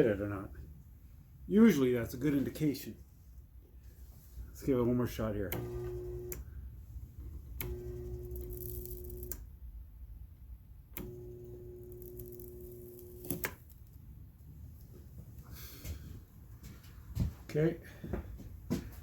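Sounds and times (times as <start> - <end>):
spot welder buzzing: 5.5 - 6.5, 7.4 - 9.4, 11.0 - 13.8
switch click: 11.0 - 11.3.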